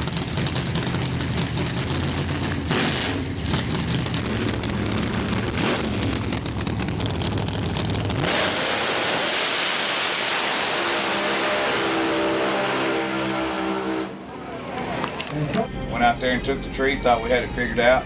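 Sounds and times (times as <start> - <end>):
drag car engine crackling: 0.0 - 12.8
steady rush of noise: 4.2 - 12.2.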